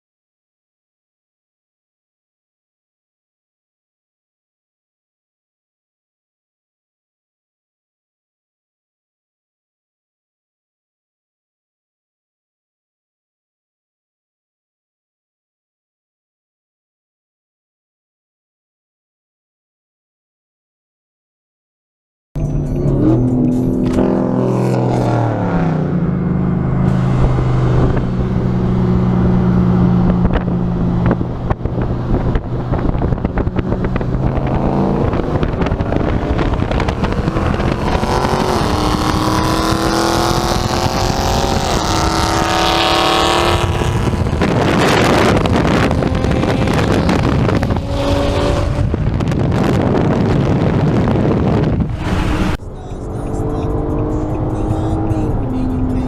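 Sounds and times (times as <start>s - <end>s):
car engine accelerating through gears: 22.4s - 56.0s
engine and road noise rush: 22.4s - 56.0s.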